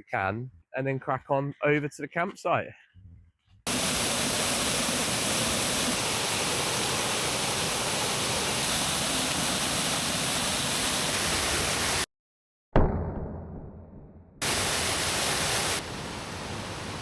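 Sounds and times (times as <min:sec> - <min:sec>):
waterfall roaring: 0:03.7 - 0:12.0, 0:14.4 - 0:17.0.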